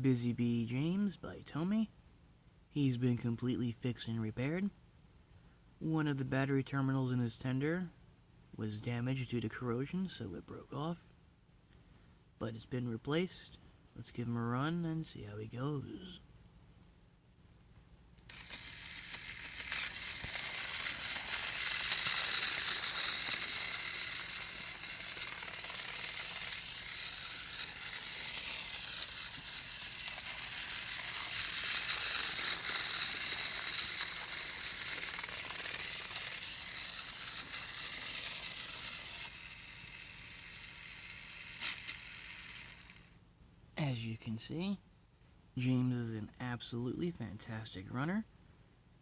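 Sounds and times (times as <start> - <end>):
toy train motor whirring: 18.3 - 43.2
toy train wheels rattling: 18.3 - 43.2.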